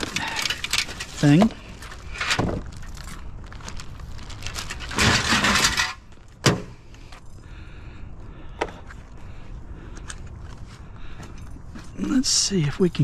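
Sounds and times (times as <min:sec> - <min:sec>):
metal shelving rattling and scraping: 0:00.0 - 0:02.5, 0:04.9 - 0:06.7.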